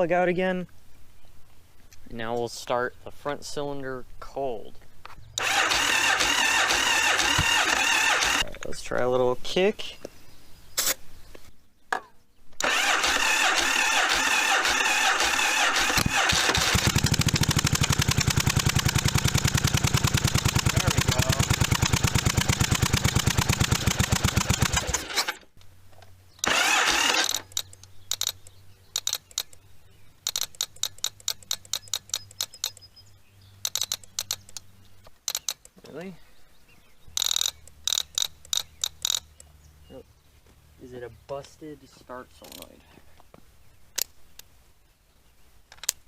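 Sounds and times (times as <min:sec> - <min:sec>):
sharp clicks: 0:05.0 - 0:09.0, 0:12.6 - 0:25.7, 0:26.4 - 0:32.9, 0:33.6 - 0:36.0, 0:37.2 - 0:39.5, 0:42.4 - 0:42.7, 0:43.9 - 0:44.5, 0:45.7 - 0:46.0
motorcycle starter cranking: 0:05.4 - 0:08.5, 0:12.6 - 0:25.5, 0:26.4 - 0:28.4, 0:30.2 - 0:32.8, 0:33.6 - 0:34.6, 0:37.2 - 0:39.3
motorcycle engine running: 0:13.9 - 0:25.1.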